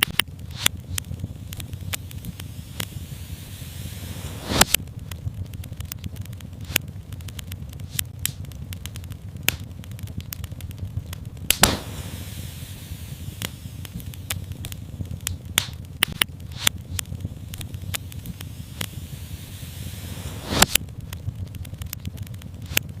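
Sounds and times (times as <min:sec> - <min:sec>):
low steady rumble: 0:00.0 - 0:23.0
wood fire crackling: 0:00.0 - 0:23.0
brief hiss: 0:02.3 - 0:04.8, 0:11.6 - 0:14.2, 0:18.2 - 0:20.8.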